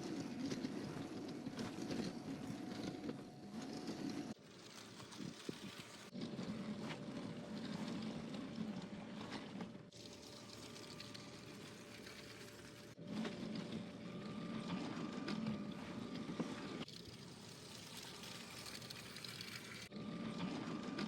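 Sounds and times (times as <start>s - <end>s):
wheels rattling on plastic track: 0.0s - 13.9s.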